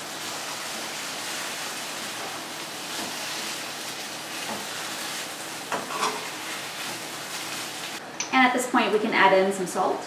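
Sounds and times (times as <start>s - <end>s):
vegetables sizzling in a pan: 0.0s - 8.0s
spatula scraping: 1.3s - 8.0s.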